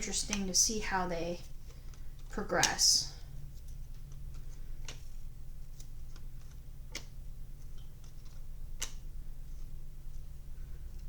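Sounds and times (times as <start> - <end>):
steady low hum: 0.0 - 11.0
trading cards clicking: 3.6 - 9.1.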